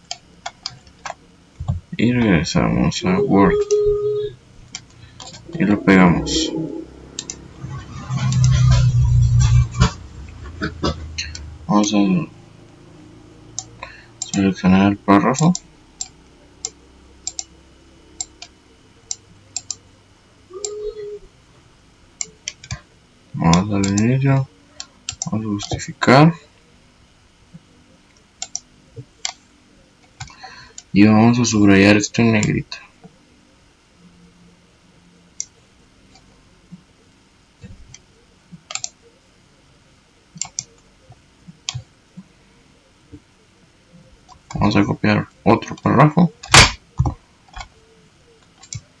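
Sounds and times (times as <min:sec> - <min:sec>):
short low hum: 0:03.7 - 0:14.8
computer mouse clicking: 0:07.2 - 0:07.4, 0:13.6 - 0:14.4, 0:15.4 - 0:17.5, 0:19.1 - 0:19.8, 0:22.2 - 0:22.8, 0:23.8 - 0:24.1, 0:25.1 - 0:25.8, 0:28.4 - 0:29.4, 0:38.7 - 0:39.0, 0:40.4 - 0:40.8, 0:41.6 - 0:41.9, 0:48.6 - 0:48.9.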